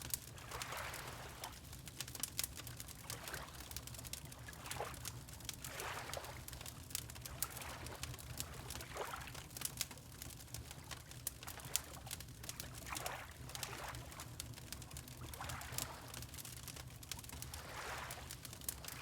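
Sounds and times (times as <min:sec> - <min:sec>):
wood fire crackling: 0:00.0 - 0:05.8, 0:06.4 - 0:08.8, 0:09.5 - 0:12.8, 0:14.1 - 0:19.0
water lapping: 0:17.6 - 0:18.3.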